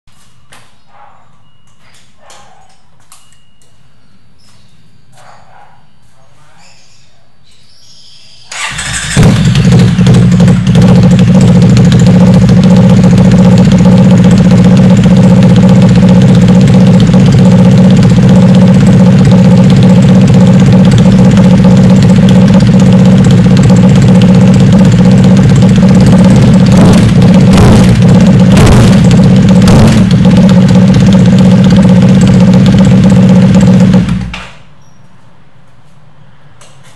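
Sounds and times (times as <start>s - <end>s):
motorcycle engine running: 8.5s - 34.7s.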